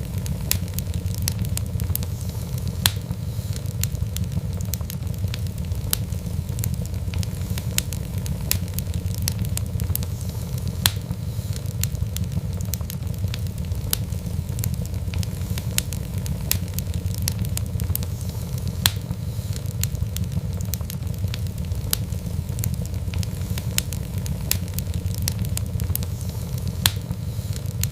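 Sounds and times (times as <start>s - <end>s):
fire pops: 0.0s - 27.9s
low fire rumble: 0.0s - 27.9s
wood fire crackling: 0.0s - 27.9s.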